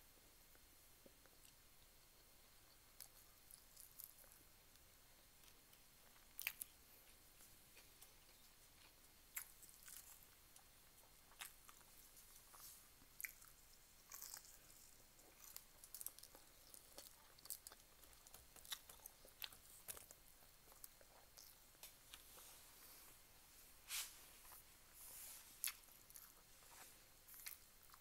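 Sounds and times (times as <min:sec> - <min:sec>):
person chewing food: 0:02.9 - 0:23.0, 0:25.6 - 0:28.0.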